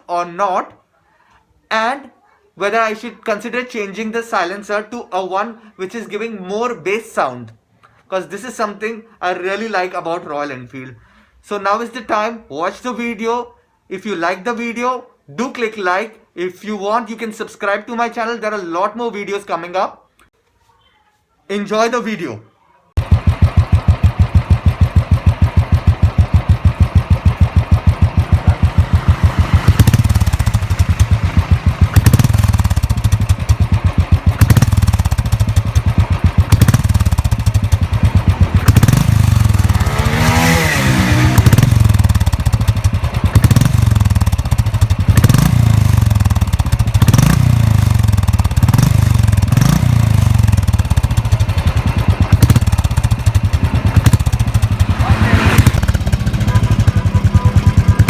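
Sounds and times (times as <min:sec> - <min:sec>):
motorcycle engine idling and revving: 0:23.0 - 0:58.0.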